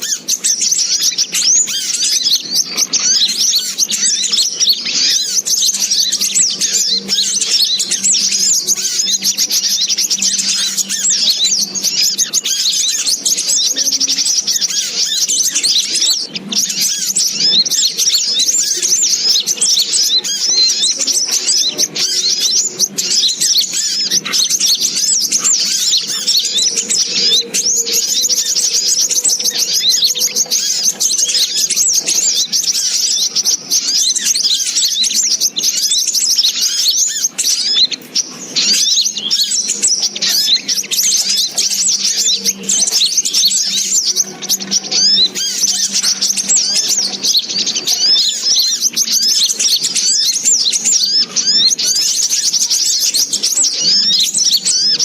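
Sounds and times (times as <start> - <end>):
rapid high-pitched bird chirps: 0.0 - 55.0.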